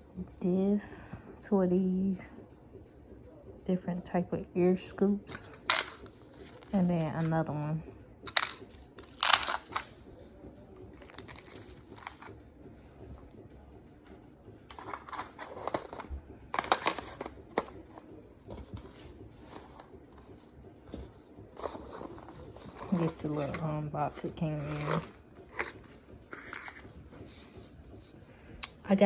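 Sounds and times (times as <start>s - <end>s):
box and plastic parts rustling: 5.4s - 7.4s, 8.3s - 9.9s, 10.8s - 12.4s, 14.7s - 28.1s.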